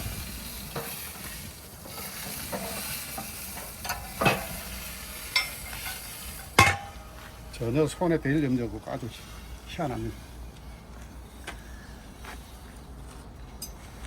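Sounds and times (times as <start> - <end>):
knocks and clinks of grill: 0.0 - 8.7
meat sizzling on a grill: 0.0 - 12.2.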